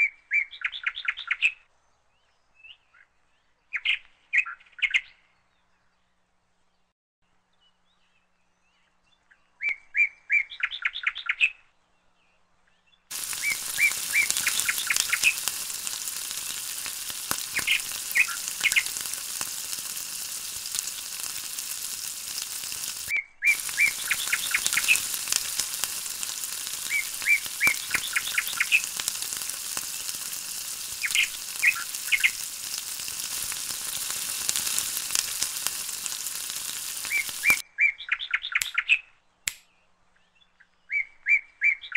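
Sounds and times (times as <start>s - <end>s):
bird chirping: 7.5s - 41.9s
sauce sizzling in a frying pan: 13.1s - 37.6s.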